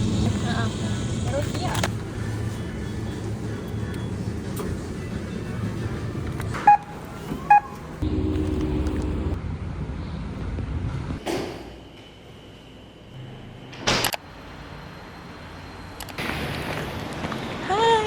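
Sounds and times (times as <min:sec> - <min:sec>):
deep steady hum: 0:08.0 - 0:09.4
low vehicle-like rumble: 0:08.0 - 0:11.2.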